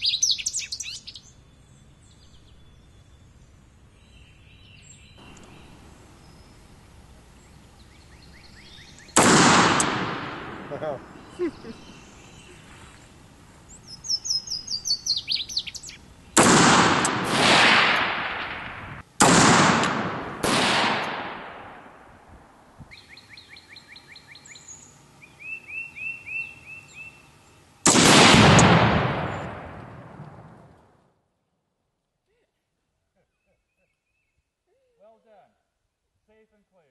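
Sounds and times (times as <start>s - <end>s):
birds chirping: 0.0s - 16.4s, 22.9s - 27.8s
rifle shots with rolling echo: 9.1s - 11.2s, 16.4s - 22.6s, 27.8s - 31.0s.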